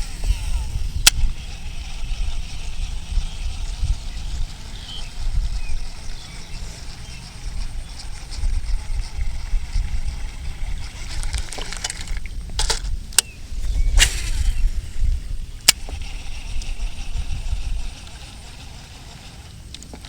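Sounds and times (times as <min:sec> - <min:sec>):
wind buffeting microphone: 0:00.0 - 0:20.0
sharp clicks: 0:11.0 - 0:14.6.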